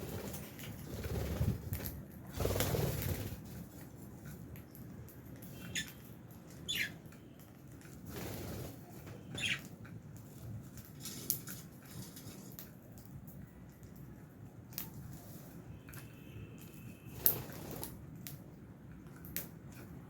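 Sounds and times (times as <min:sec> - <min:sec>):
birds chirping: 0:04.7 - 0:07.1, 0:09.2 - 0:09.8
scratching and rustling: 0:10.8 - 0:12.7.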